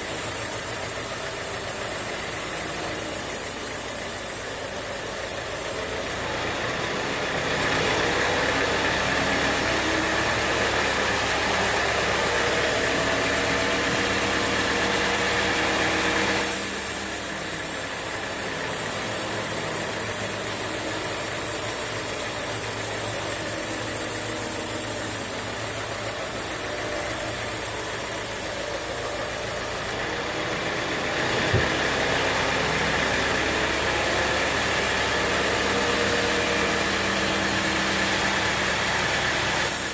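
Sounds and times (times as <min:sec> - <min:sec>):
high hiss: 0:00.0 - 0:06.2, 0:09.3 - 0:29.9
sawmill machinery humming: 0:00.0 - 0:39.9.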